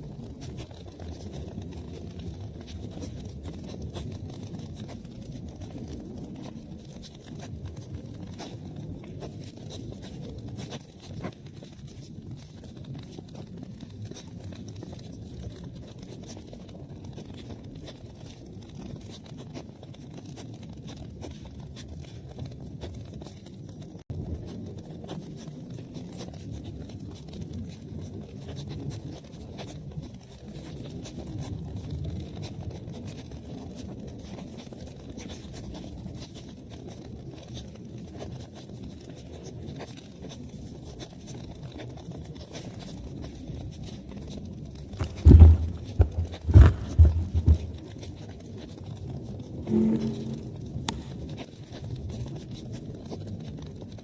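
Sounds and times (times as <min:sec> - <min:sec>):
low rumble of flames: 0:00.0 - 0:54.0
wood fire crackling and popping: 0:43.9 - 0:48.2.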